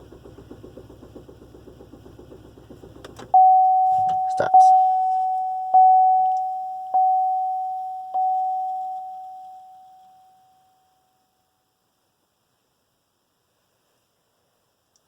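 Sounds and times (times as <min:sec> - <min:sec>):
car warning chime: 0:03.3 - 0:11.3.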